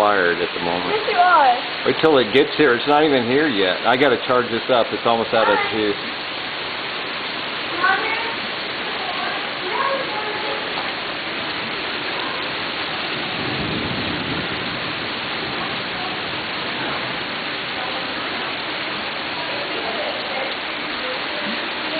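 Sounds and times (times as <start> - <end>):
heavy rain pouring: 0.0 - 21.9.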